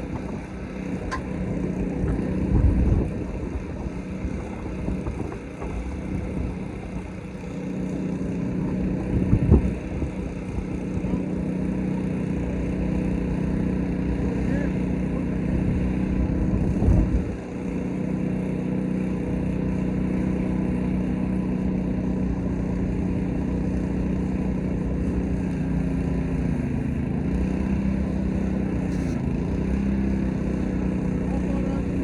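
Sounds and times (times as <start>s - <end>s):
pressure washer engine running: 0.0s - 32.0s.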